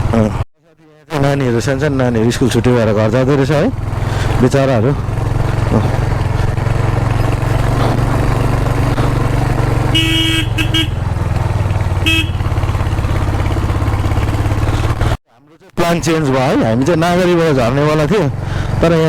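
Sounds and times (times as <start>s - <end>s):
motorcycle engine running: 0.0s - 0.4s, 1.3s - 15.2s, 16.1s - 19.0s
motorcycle horn honking: 9.3s - 14.9s.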